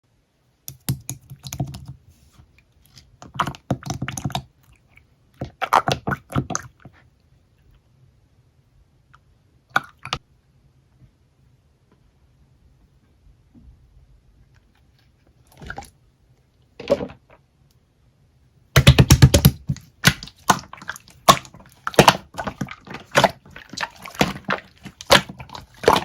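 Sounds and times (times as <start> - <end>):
slime squished by hand: 5.4 - 6.9, 18.8 - 26.0.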